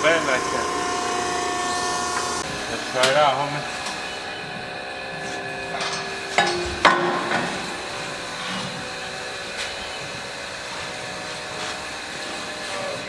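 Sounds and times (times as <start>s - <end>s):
metal pipe clanks: 0.0s - 9.7s
steady shop hum: 0.0s - 13.0s.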